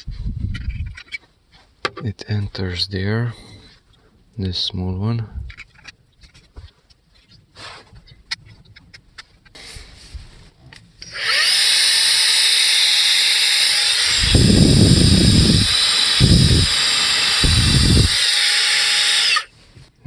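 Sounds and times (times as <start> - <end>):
handheld vacuum cleaner whine: 11.0 - 19.5.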